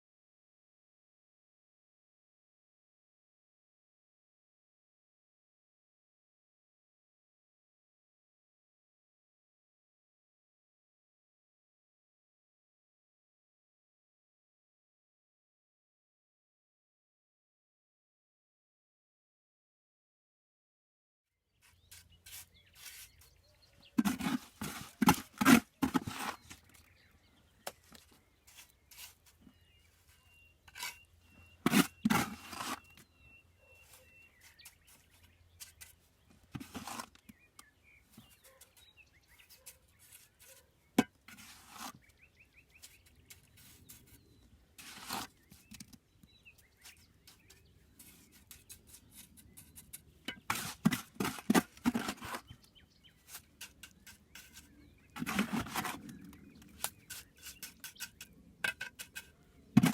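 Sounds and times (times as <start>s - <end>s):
tools scraping and knocking on brick: 21.6s - 59.9s.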